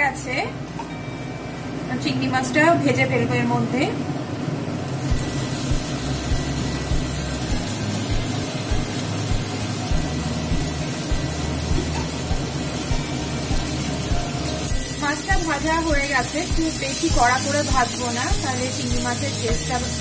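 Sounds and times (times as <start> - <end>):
prawns frying in hot oil: 4.8 - 20.0.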